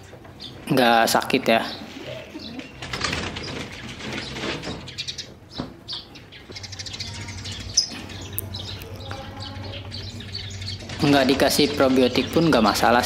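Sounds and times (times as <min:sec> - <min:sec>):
pigeons flapping wings: 0:02.6 - 0:04.7.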